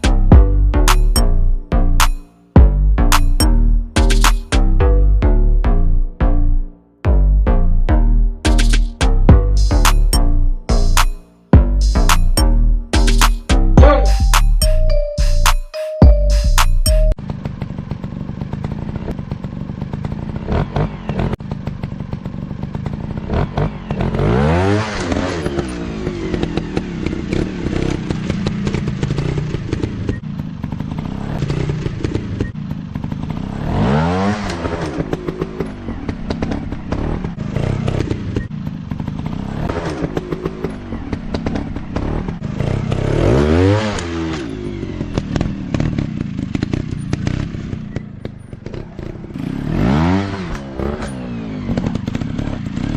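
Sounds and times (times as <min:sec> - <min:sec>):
dirt bike engines revving: 0:17.2 - 0:52.9.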